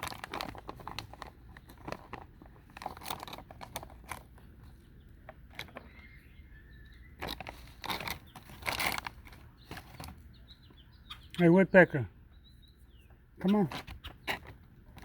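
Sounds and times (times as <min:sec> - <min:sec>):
nuts crunching and cracking: 0:00.0 - 0:04.7, 0:07.1 - 0:10.2.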